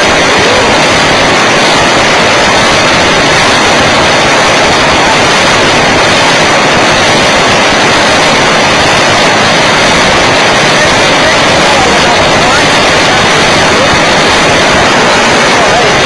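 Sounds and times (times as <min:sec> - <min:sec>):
model plane engine: 0:00.0 - 0:09.8
wind rushing: 0:00.0 - 0:16.0.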